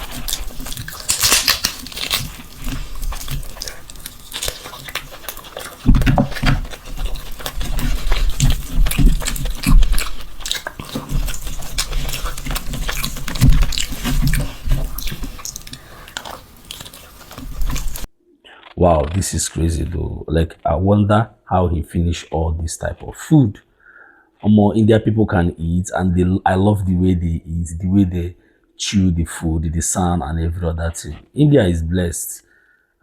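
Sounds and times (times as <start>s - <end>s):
person chewing food: 0.0s - 18.7s.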